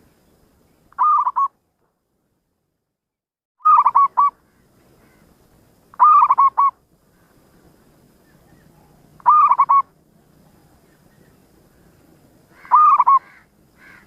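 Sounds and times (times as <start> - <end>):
dove cooing: 3.7 - 4.3, 6.0 - 6.8, 8.3 - 11.3, 12.6 - 14.0.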